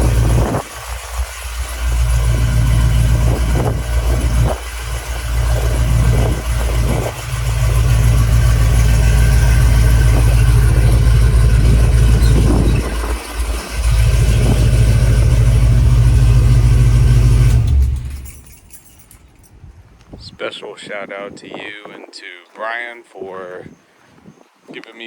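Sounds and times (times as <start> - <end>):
pickup truck engine running: 0.0 - 19.5.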